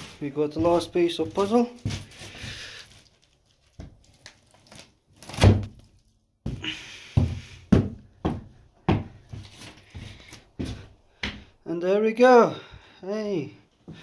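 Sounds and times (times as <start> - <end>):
dull wooden thuds and knocks: 6.5 - 9.5.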